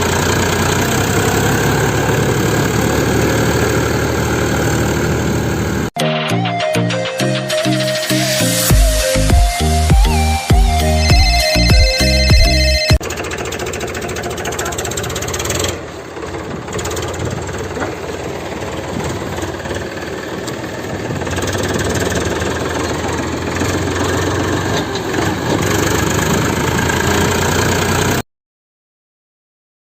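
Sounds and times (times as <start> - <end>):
small engine running: 0.0 - 5.9, 11.1 - 28.2.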